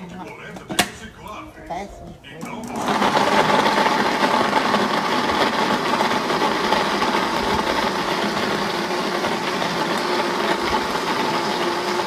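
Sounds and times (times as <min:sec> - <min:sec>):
kitchen blender running: 0:02.6 - 0:12.0.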